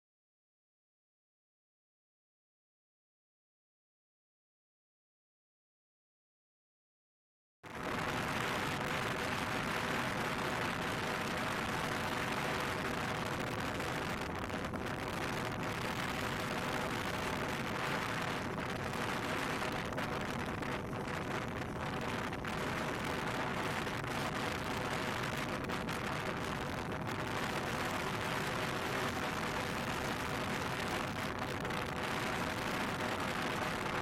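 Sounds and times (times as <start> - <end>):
motorcycle engine drone: 7.7 - 34.0
wind noise over microphone: 7.7 - 34.0.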